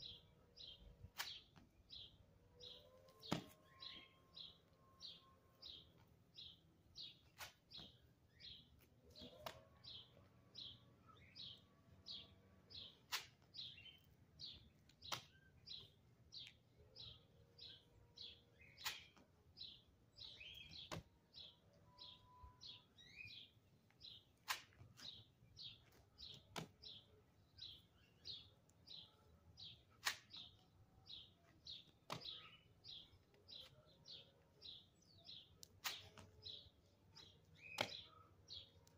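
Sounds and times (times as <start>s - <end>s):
bird chirping: 0.0s - 38.9s
hands and shoes slapping concrete: 7.2s - 7.9s, 13.0s - 13.6s, 14.8s - 15.4s, 24.4s - 25.2s.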